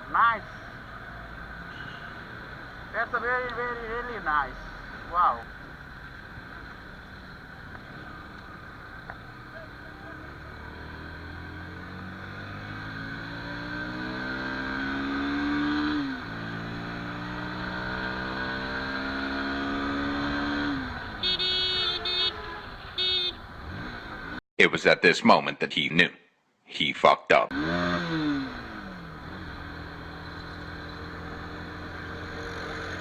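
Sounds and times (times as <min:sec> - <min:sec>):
vehicle horn toot: 0:01.7 - 0:02.2, 0:21.2 - 0:23.8
motorcycle engine accelerating: 0:04.8 - 0:24.4, 0:27.5 - 0:33.0.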